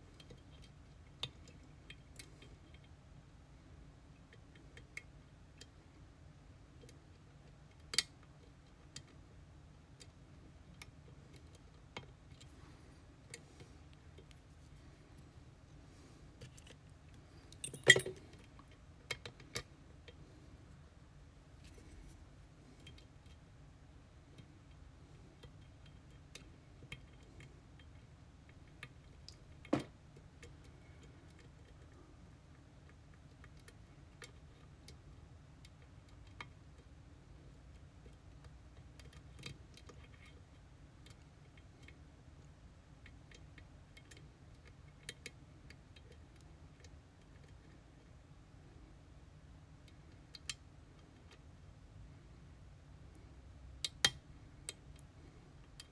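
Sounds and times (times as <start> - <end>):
small metal clicks of lock picking: 17.5 - 19.7.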